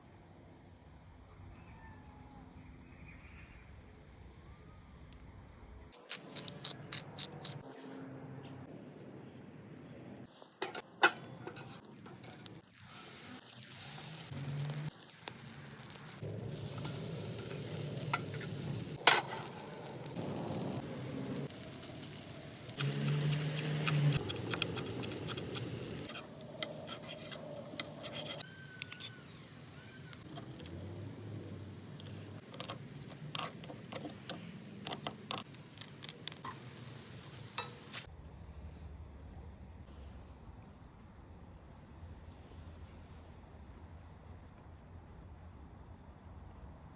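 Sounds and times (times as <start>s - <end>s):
grill fire crackling and popping: 5.9s - 7.6s, 10.3s - 38.1s.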